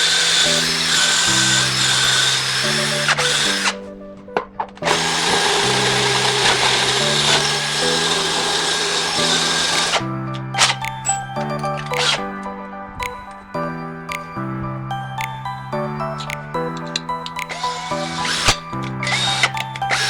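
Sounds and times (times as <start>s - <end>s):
power drill running: 0.0s - 3.8s, 4.8s - 10.0s
background music: 0.0s - 20.0s.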